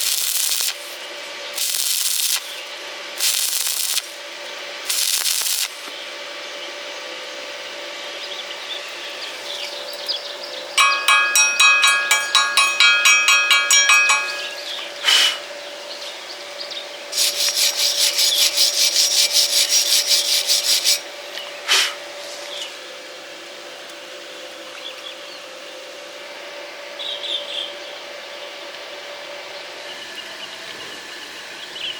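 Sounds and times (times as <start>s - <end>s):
hand tool scraping metal: 10.8s - 15.3s, 17.2s - 21.0s.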